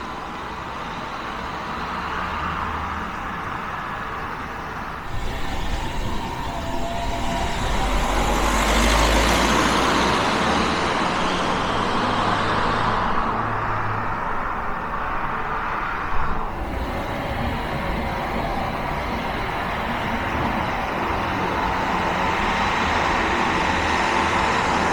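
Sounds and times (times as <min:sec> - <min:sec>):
car driving past: 0:05.0 - 0:24.9.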